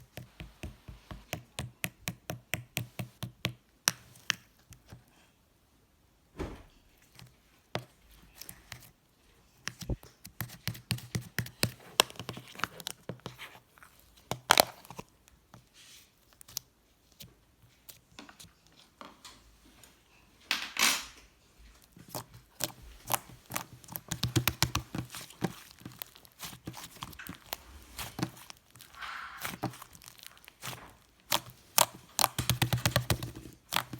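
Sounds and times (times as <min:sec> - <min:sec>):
slime snapping and tearing: 0:22.1 - 0:33.9.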